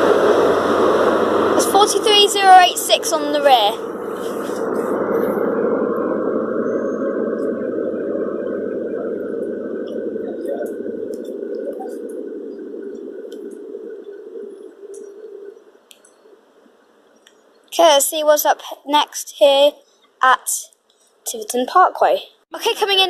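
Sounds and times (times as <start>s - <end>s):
train rumbling: 0.0s - 15.6s.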